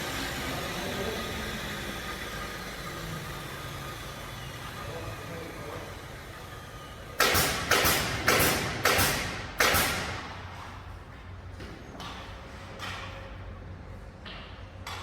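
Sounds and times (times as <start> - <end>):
hammer nailing into wood: 7.2 - 10.3.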